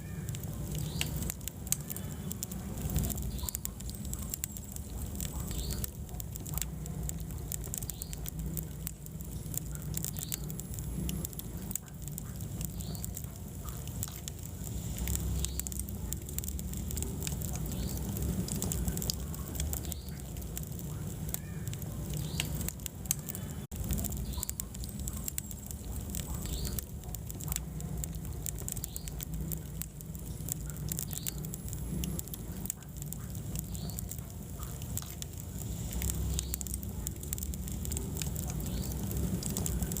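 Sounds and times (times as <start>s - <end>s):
low rumble of flames: 0.0s - 40.0s
wood fire crackling and popping: 0.0s - 40.0s.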